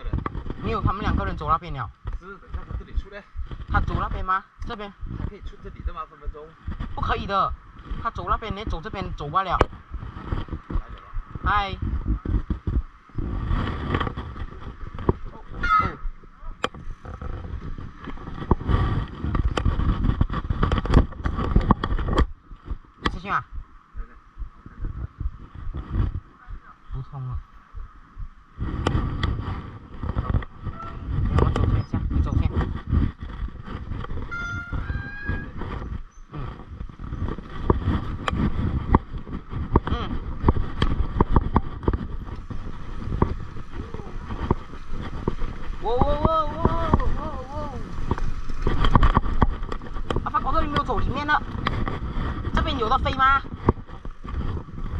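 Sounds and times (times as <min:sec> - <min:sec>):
bike rumbling over rough trail: 0:00.0 - 0:26.7, 0:27.7 - 0:54.9
bike rattling and knocking: 0:08.0 - 0:23.7, 0:28.2 - 0:54.9.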